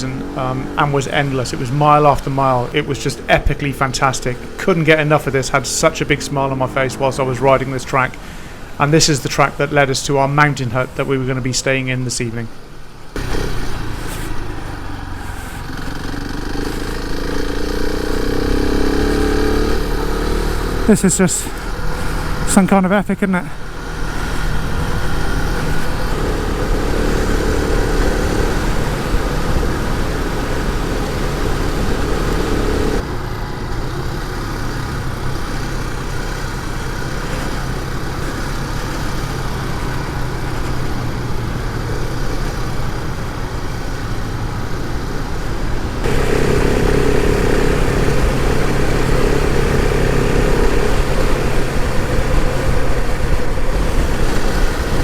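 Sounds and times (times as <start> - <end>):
motorcycle engine running: 13.2 - 22.5, 23.6 - 55.0.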